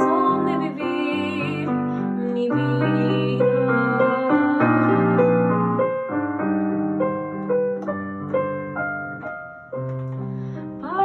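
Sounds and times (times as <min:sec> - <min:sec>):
solo piano playing: 0:00.0 - 0:11.0.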